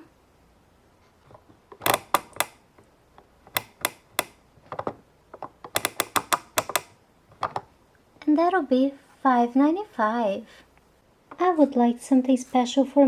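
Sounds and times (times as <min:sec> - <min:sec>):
plastic toy keys clicking: 0:01.8 - 0:02.6, 0:03.5 - 0:04.4, 0:05.7 - 0:07.6.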